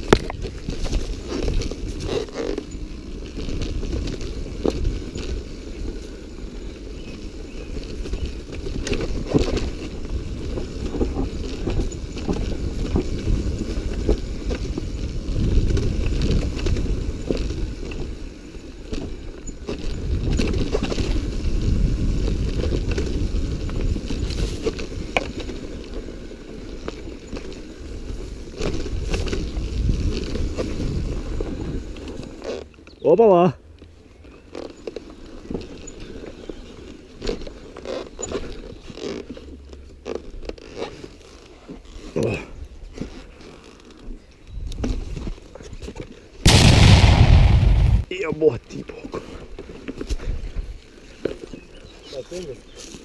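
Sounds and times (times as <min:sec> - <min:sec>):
wind rumbling on microphone: 0:46.5 - 0:48.1.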